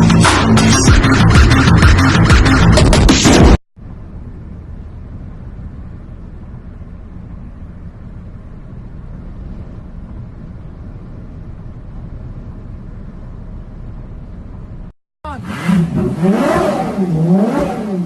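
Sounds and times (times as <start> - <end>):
vehicle low rumble: 3.8 - 18.0.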